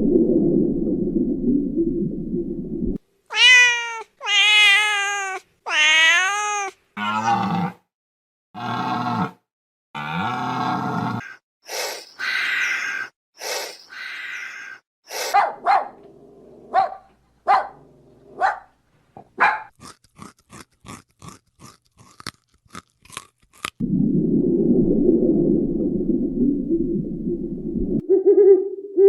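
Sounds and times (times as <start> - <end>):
dog barking: 15.3 - 16.0, 16.7 - 19.7.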